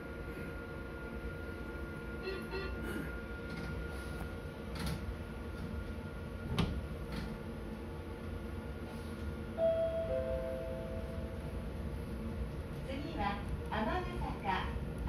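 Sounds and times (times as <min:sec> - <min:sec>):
electric train rumble: 0:00.0 - 0:15.0
two-note electronic chime: 0:09.6 - 0:11.4.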